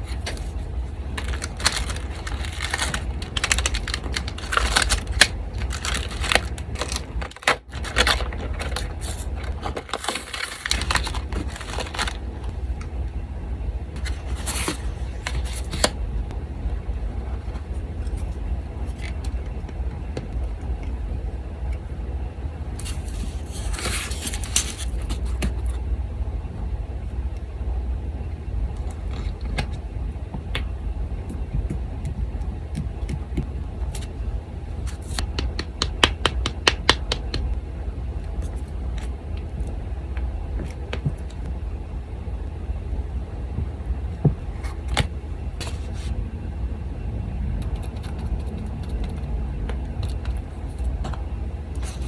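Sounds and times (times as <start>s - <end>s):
paper rustling: 0.0s - 12.2s, 14.0s - 15.9s, 22.8s - 25.7s, 44.6s - 46.1s
electric fan humming: 0.0s - 52.0s.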